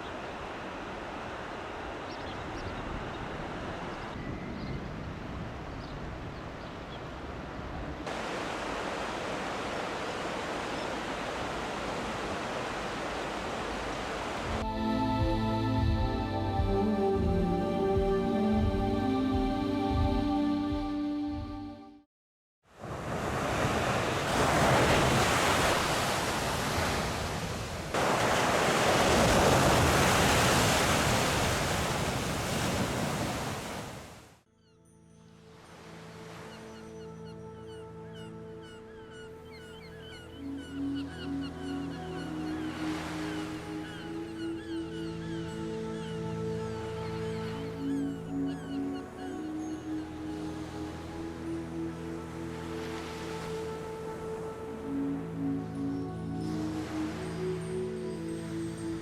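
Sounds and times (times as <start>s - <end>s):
flowing water rushing: 8.0s - 14.6s, 22.8s - 34.2s.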